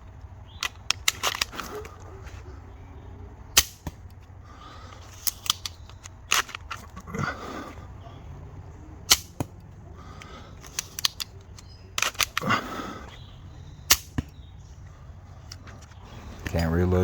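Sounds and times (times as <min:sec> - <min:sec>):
plastic clicks: 0:00.0 - 0:02.5, 0:03.5 - 0:07.1, 0:09.0 - 0:16.8
rustle of pump action: 0:00.0 - 0:02.6, 0:03.6 - 0:08.0, 0:09.1 - 0:16.8
toy pistol shots snapping: 0:00.5 - 0:02.1, 0:03.5 - 0:04.3, 0:04.9 - 0:07.0, 0:09.0 - 0:12.8, 0:13.8 - 0:14.5.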